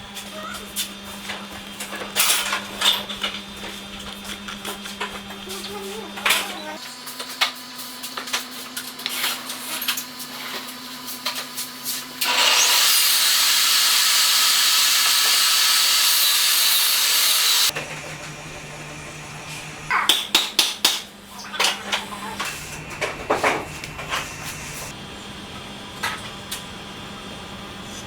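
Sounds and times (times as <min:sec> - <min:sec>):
woodworking power tool running: 0:12.0 - 0:19.9.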